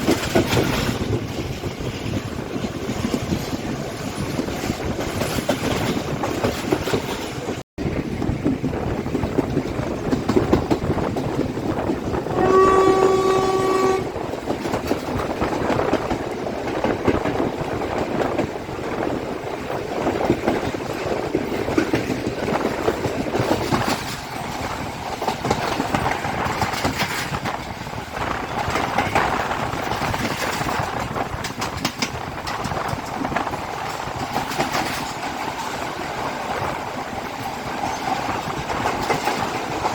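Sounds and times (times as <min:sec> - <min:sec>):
train wheels rumbling on rails: 0:00.0 - 0:39.9
locomotive horn: 0:12.2 - 0:14.2.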